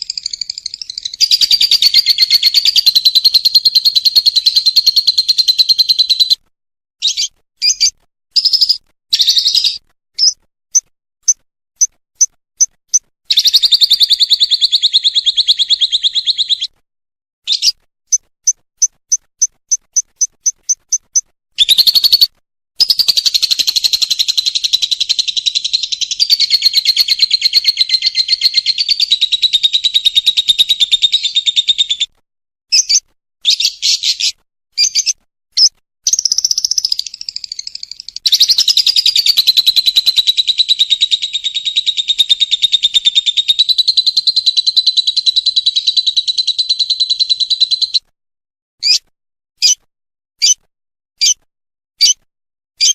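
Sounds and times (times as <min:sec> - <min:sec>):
lovebird chattering trills: 0:00.0 - 0:06.4, 0:19.4 - 0:32.0, 0:36.1 - 0:48.0
lovebird short chirps: 0:07.0 - 0:16.7, 0:17.5 - 0:24.8, 0:32.7 - 0:41.4, 0:48.8 - 0:49.0.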